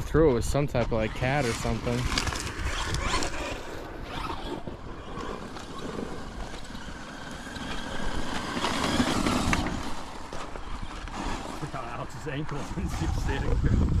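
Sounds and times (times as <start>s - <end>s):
radio-controlled truck running: 0.0s - 14.0s.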